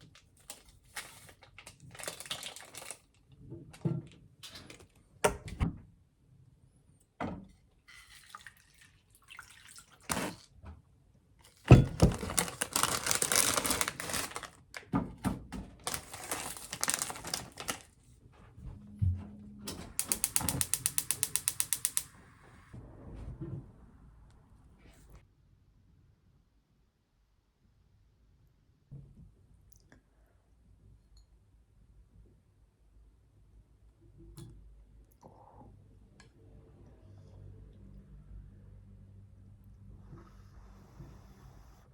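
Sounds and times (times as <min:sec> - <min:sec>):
ratchet-like clicks: 0:20.0 - 0:22.2.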